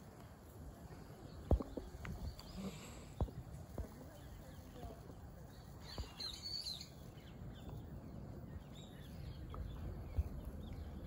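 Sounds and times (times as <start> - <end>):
small birds chirping: 0.0 - 11.0
low outdoor rumble: 6.8 - 11.0.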